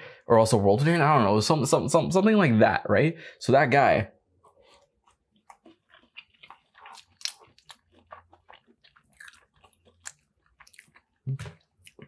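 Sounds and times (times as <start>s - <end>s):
person chewing: 4.4s - 12.0s.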